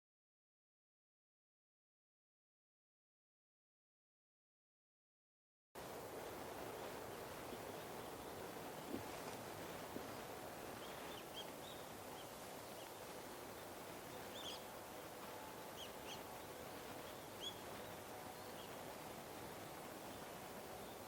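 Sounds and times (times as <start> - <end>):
outdoor background noise: 5.8 - 21.0
small birds calling: 6.2 - 21.0.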